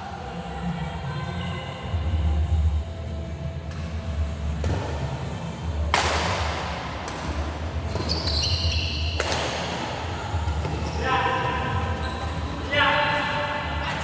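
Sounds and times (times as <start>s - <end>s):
high squeaks: 7.9s - 9.3s.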